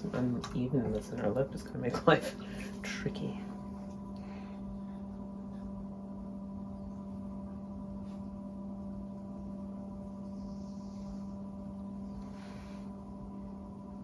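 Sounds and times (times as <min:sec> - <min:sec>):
potter's wheel humming: 0:00.0 - 0:14.0.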